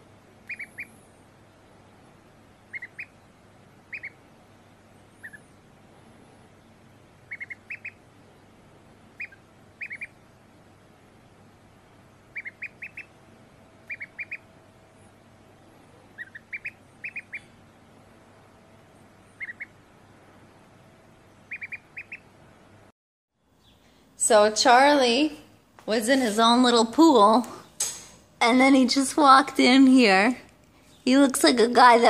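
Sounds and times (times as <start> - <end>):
duckling peeping: 0.4 - 1.0, 2.5 - 4.3, 5.0 - 5.6, 7.0 - 8.5, 9.1 - 10.3, 12.1 - 13.2, 13.8 - 14.6, 15.5 - 17.7, 19.2 - 19.9, 21.4 - 22.4.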